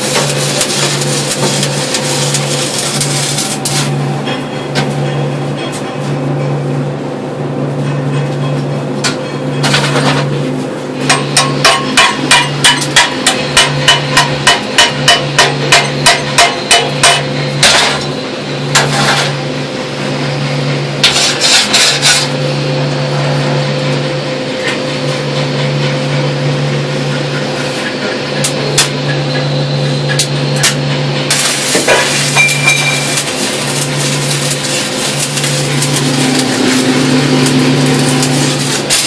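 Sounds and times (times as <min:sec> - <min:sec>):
hammer striking metal weld: 0:00.0 - 0:05.7, 0:11.0 - 0:19.4, 0:30.1 - 0:39.0.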